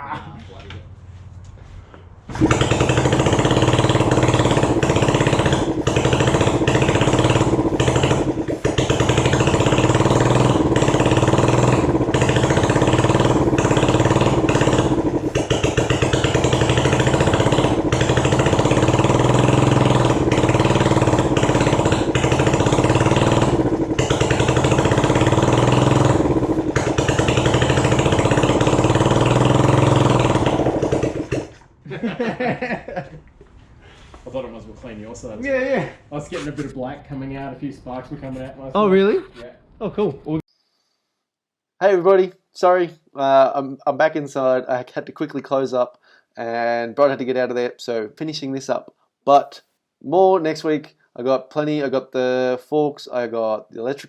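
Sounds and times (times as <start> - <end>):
motorcycle engine running loudly: 2.3 - 31.7.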